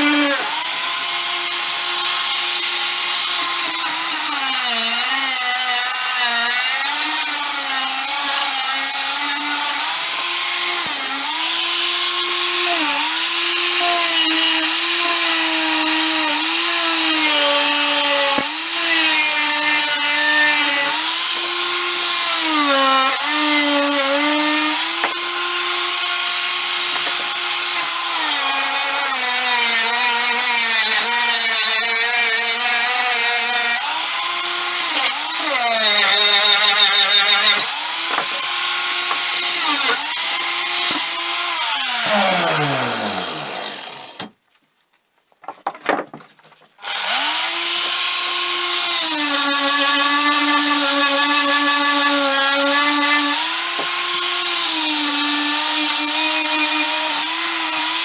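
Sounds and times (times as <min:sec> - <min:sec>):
electric power tool running: 0:36.7 - 0:44.3.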